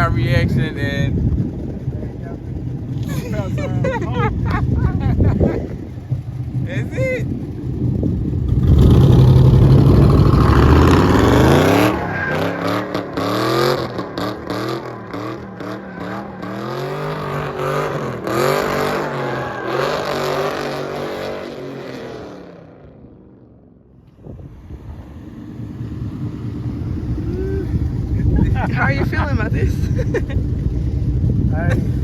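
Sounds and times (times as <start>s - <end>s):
car engine revving hard: 6.2s - 23.0s.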